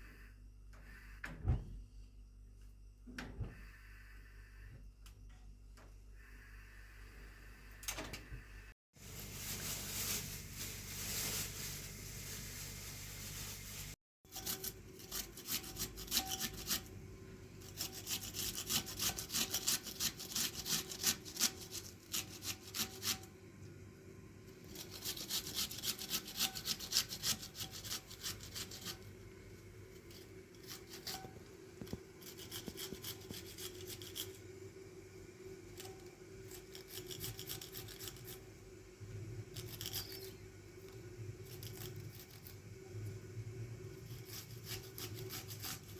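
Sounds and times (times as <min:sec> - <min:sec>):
rapid scraping strokes: 0:24.7 - 0:29.1.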